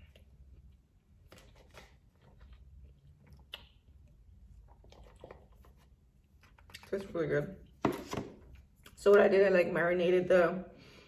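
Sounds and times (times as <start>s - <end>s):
faint chewing: 0.0s - 7.2s.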